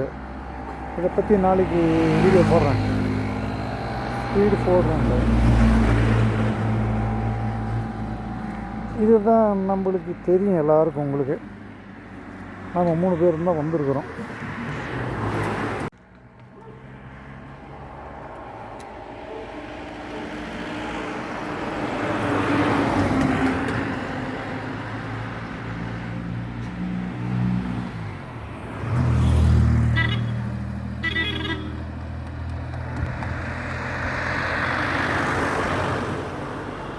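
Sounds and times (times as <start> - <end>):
vehicles passing: 0.0 - 36.9.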